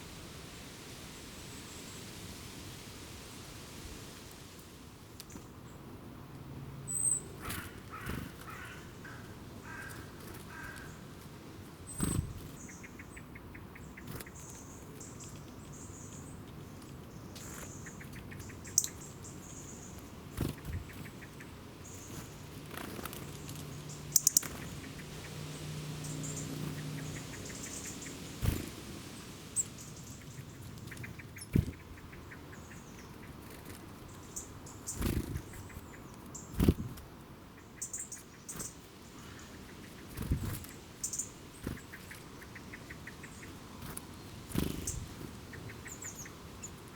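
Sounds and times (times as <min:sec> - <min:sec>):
harsh repeated bird calls: 0:06.9 - 0:11.0, 0:23.8 - 0:28.6
birds chirping: 0:11.9 - 0:36.8, 0:37.5 - 0:46.9.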